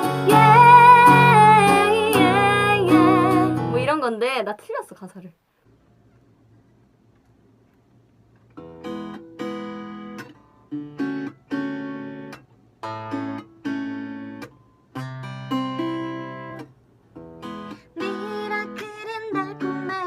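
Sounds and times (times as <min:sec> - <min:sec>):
acoustic guitar strumming chords: 0:00.0 - 0:04.0, 0:08.6 - 0:20.0.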